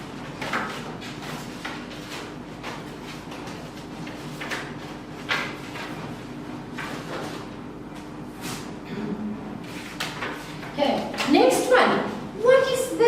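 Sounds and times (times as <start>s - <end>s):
paper cards rustling and knocking: 0.3s - 6.1s.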